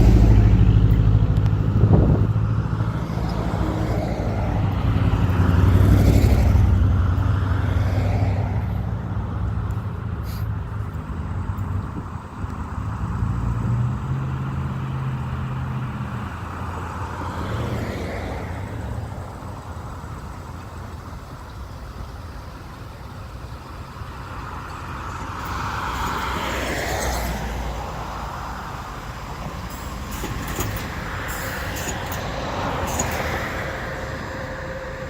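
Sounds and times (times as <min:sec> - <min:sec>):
railcar low hum: 0:00.0 - 0:35.0.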